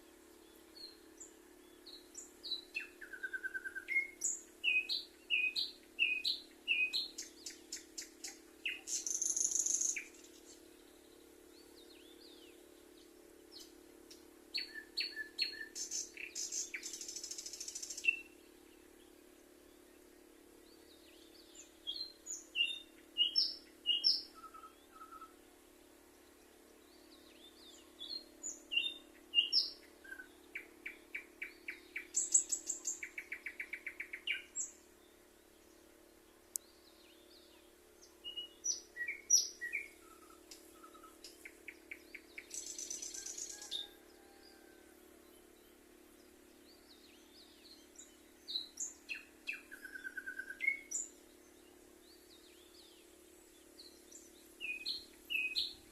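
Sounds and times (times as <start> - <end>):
songbird whistling and trilling: 0.8 - 10.5, 14.6 - 18.4, 21.1 - 25.4, 27.4 - 34.7, 38.2 - 43.9, 47.2 - 51.1, 53.8 - 55.9.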